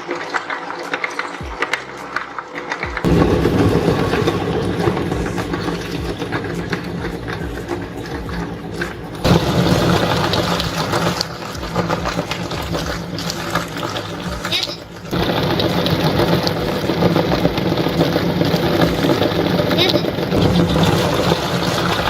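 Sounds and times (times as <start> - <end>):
electric meat grinder running: 0.0 - 22.0.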